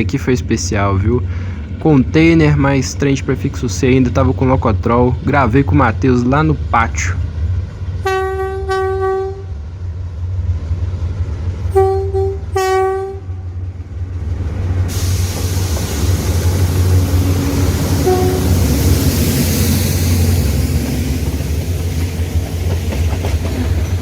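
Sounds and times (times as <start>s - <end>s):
locomotive engine rumble: 0.0s - 24.0s
rolling train noise: 0.0s - 24.0s
locomotive air horn blasts: 8.0s - 9.5s, 11.7s - 13.4s, 16.6s - 18.8s.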